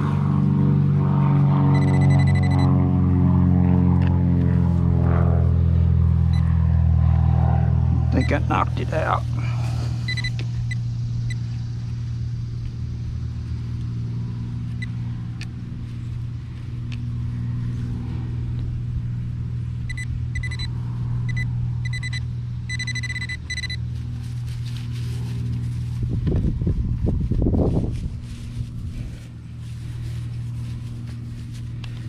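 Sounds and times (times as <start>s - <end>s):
low engine-like hum: 0.0s - 32.0s
metal detector beeps: 1.7s - 2.8s, 6.3s - 6.6s, 8.1s - 8.9s, 10.0s - 11.4s, 19.9s - 23.8s.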